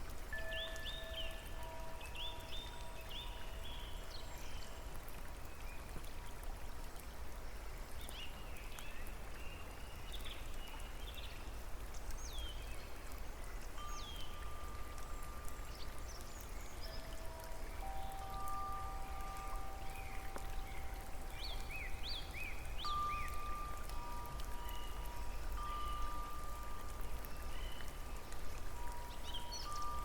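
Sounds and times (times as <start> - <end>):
steady water noise: 0.0 - 30.0
small birds chirping: 8.0 - 30.0.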